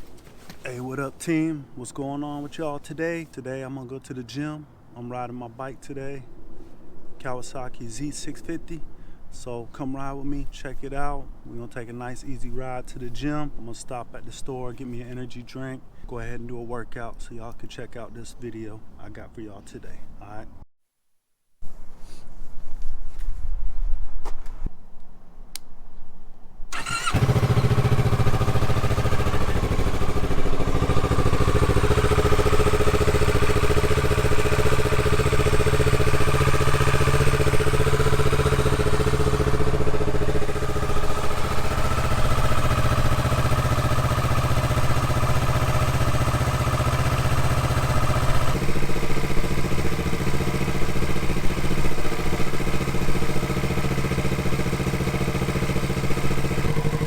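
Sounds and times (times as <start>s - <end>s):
motorcycle engine starting and running: 26.7s - 57.0s.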